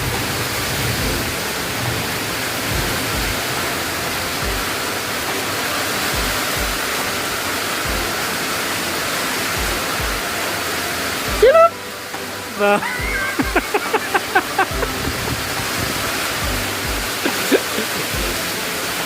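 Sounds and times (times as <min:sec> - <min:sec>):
low thumps: 0:00.0 - 0:04.9, 0:14.7 - 0:17.2
rain hissing: 0:00.0 - 0:19.0.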